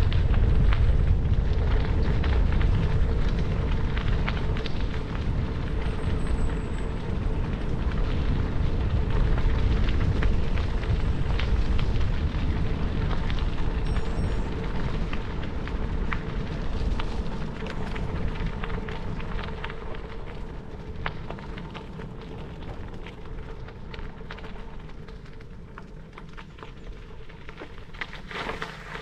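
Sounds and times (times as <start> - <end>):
bicycle tyres crunching over gravel: 0.0 - 29.0
low microphone rumble: 0.0 - 29.0
stones popping under tyres: 8.9 - 29.0.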